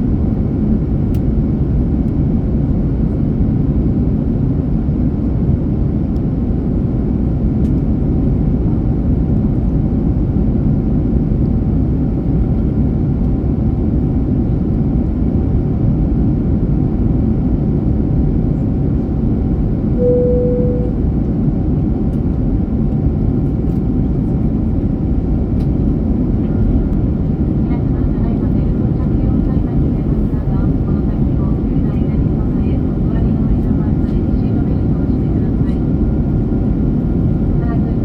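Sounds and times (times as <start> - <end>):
jet cabin engine rumble: 0.0 - 38.0
faint steady whine: 20.0 - 21.0
single electronic tone: 20.0 - 21.0.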